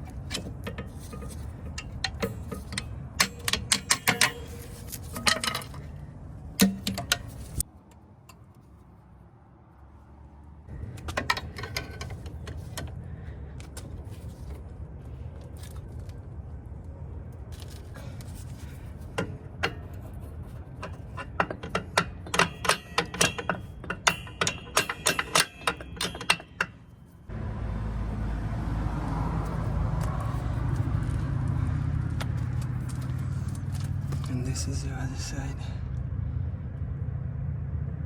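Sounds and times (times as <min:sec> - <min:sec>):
metal tools clinking: 0:00.0 - 0:07.6, 0:11.1 - 0:14.6, 0:17.6 - 0:27.3
sharp ringing metallic clicks: 0:00.7 - 0:05.8, 0:20.8 - 0:27.2.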